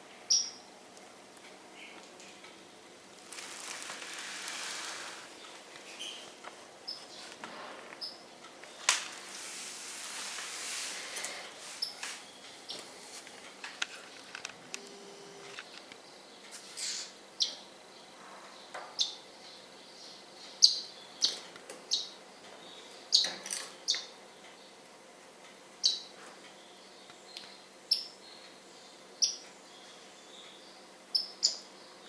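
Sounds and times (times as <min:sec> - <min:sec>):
birds chirping: 0:00.2 - 0:00.7, 0:01.6 - 0:09.3, 0:15.4 - 0:24.9, 0:25.8 - 0:32.0.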